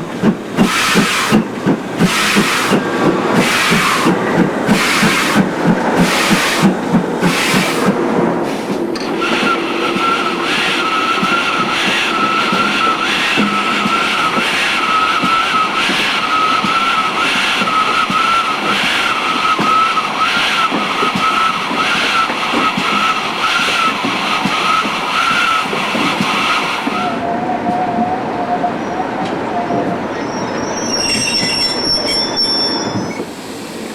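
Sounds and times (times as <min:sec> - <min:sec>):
train wheels squealing: 0:00.0 - 0:07.9, 0:08.5 - 0:33.9
train running noise: 0:00.0 - 0:33.9.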